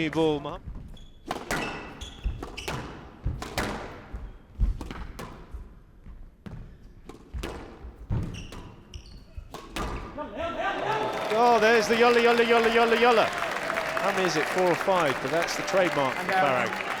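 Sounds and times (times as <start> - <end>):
court shoes squeaking: 0.8 - 5.6, 6.4 - 10.2
squash ball hits: 1.3 - 5.4, 6.5 - 8.8, 9.5 - 10.1.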